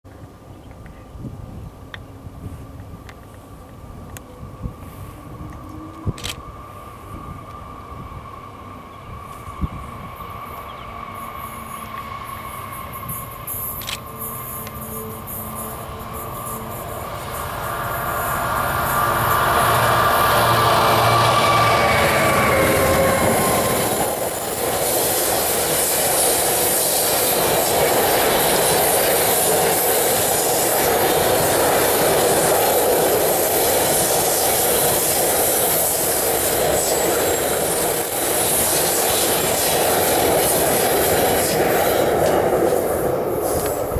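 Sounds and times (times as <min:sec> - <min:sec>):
freight train rolling past: 0:00.1 - 0:43.9
high wheel squeal: 0:10.5 - 0:24.7
pitched drone: 0:10.6 - 0:24.8.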